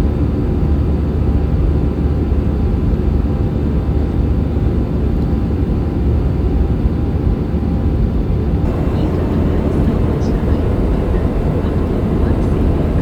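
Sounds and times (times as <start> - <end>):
jet engine and airflow rumble: 8.4 - 13.0.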